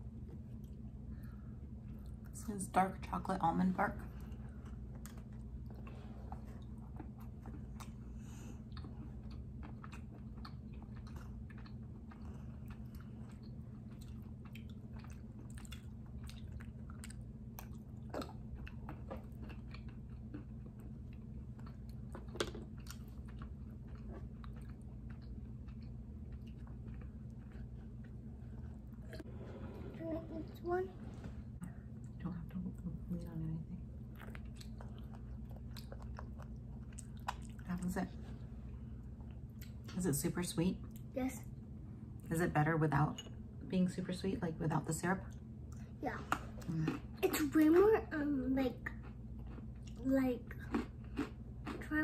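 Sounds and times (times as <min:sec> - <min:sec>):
steady low hum: 0:00.0 - 0:52.0
chewing with crunches: 0:04.0 - 0:29.3, 0:34.0 - 0:40.0, 0:45.3 - 0:52.0.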